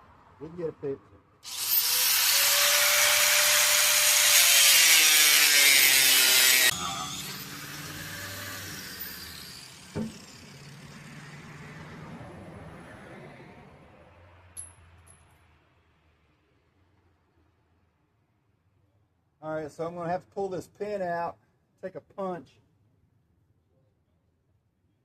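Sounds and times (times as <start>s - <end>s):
power tool running: 1.4s - 11.4s.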